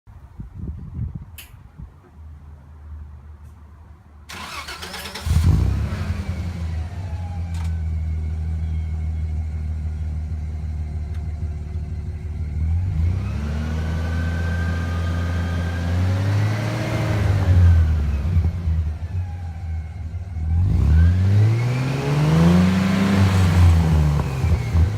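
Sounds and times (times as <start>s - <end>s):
engine idling and revving: 4.3s - 24.9s.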